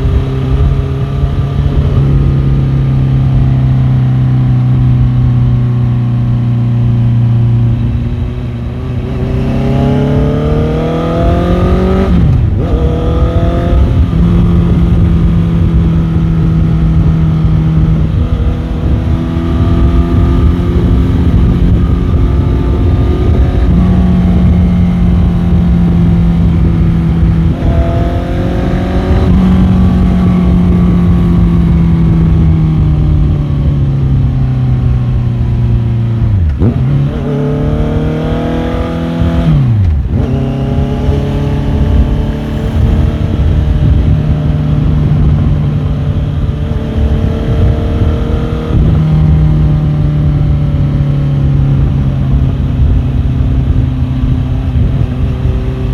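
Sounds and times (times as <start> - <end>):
low wind rumble: 0.0 - 55.9
motorcycle engine revving: 0.0 - 55.9.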